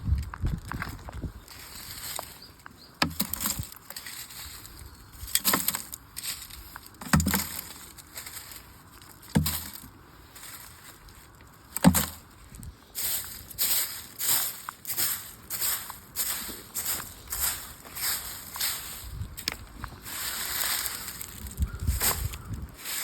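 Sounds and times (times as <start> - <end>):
axe chopping firewood: 7.0 - 7.7, 9.3 - 9.8, 11.8 - 12.2.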